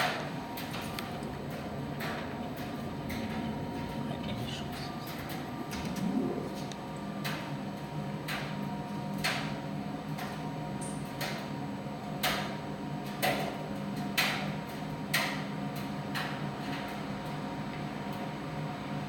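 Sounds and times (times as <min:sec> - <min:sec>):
tumble dryer humming: 0:00.0 - 0:08.3.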